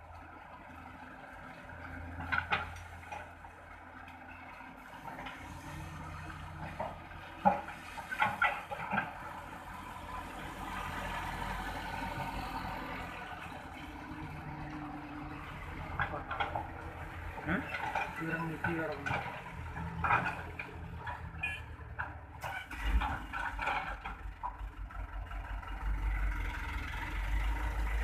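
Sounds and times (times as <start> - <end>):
knocks and clanks: 15.8 - 22.2
heavy engine idling: 23.2 - 28.0.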